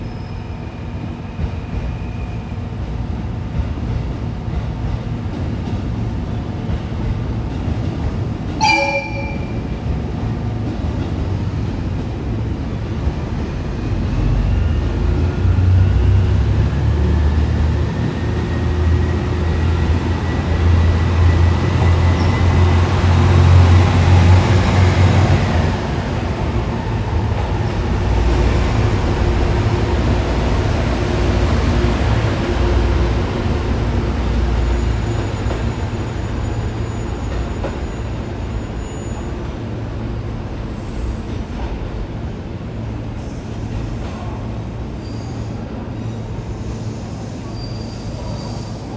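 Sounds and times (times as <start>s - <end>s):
diesel railcar engines: 0.0s - 48.9s
train horn toot: 8.6s - 9.8s.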